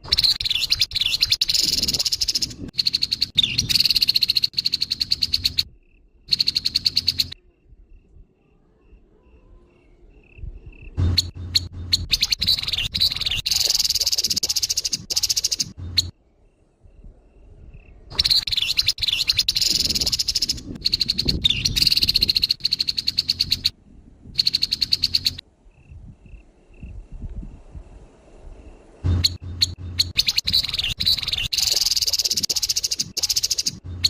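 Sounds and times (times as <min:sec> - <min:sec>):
bird rattling calls: 0:00.0 - 0:05.7, 0:06.3 - 0:07.4, 0:11.0 - 0:16.1, 0:18.2 - 0:23.7, 0:24.4 - 0:25.4, 0:29.1 - 0:34.0.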